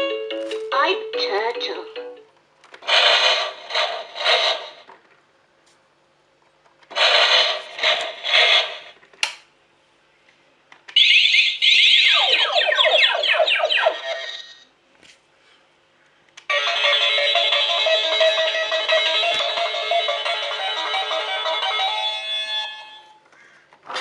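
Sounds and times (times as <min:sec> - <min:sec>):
fast warbling electronic tone: 0:11.1 - 0:14.6.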